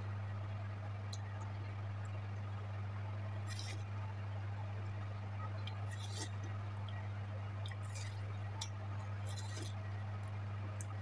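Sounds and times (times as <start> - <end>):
steady low hum: 0.0 - 11.0
crunchy chewing of watermelon: 3.4 - 3.9, 5.4 - 11.0.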